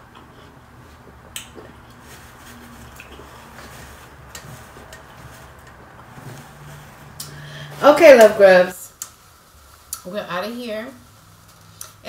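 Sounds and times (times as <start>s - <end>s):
person chewing food: 0.0s - 7.4s
low room hum: 0.0s - 12.0s.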